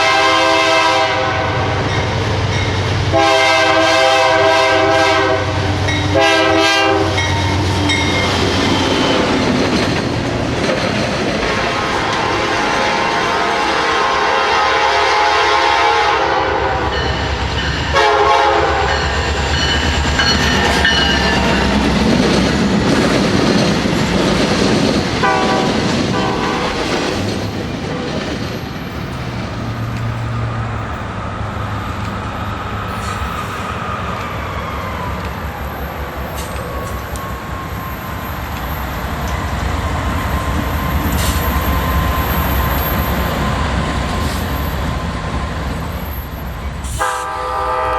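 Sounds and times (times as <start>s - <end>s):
train horn blasts: 0.0s - 1.8s, 3.1s - 7.6s, 11.5s - 17.1s, 17.9s - 19.1s, 25.2s - 26.8s, 46.8s - 47.9s
wheels clattering on rail: 5.7s - 13.4s, 16.8s - 34.4s.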